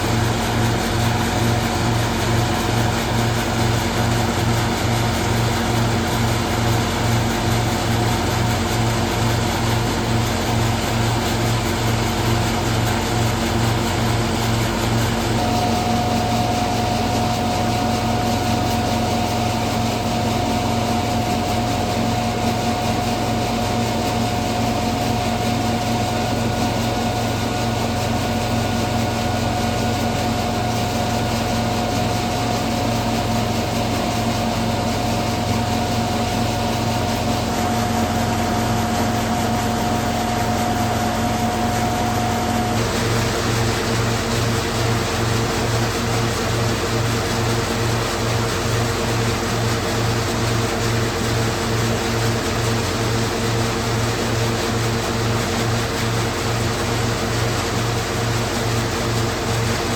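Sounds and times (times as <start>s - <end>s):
steady machine whine: 0.0s - 59.6s
threshing machine droning: 0.0s - 59.9s.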